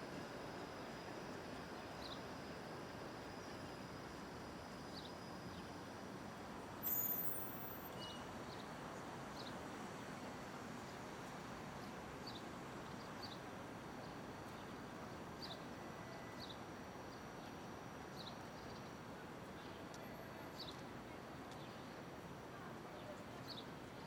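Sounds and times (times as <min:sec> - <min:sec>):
city street hum: 0:00.0 - 0:24.0
small bird chirping: 0:06.8 - 0:08.2.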